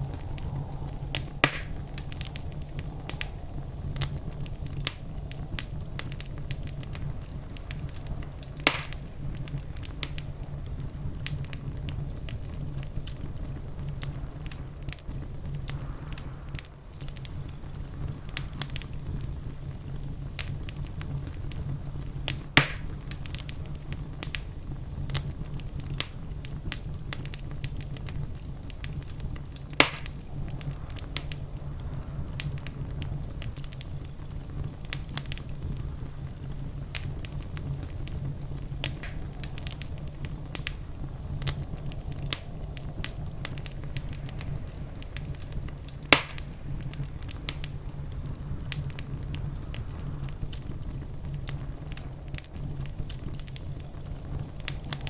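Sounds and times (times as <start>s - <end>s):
fire crackling: 0.0s - 55.0s
fire flames rumbling: 0.0s - 55.0s
loud wood pops: 1.4s - 1.7s, 8.6s - 9.0s, 29.8s - 30.2s, 46.1s - 46.5s.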